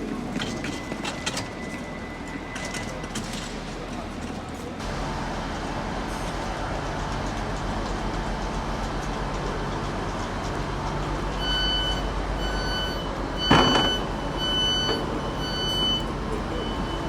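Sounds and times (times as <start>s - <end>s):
door warning beeps: 11.4s - 17.0s.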